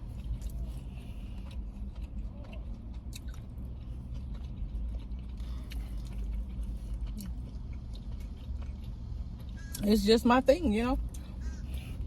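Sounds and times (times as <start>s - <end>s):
chewing and biting food: 0.0s - 10.0s, 11.0s - 12.0s
steady low hum: 0.0s - 12.0s.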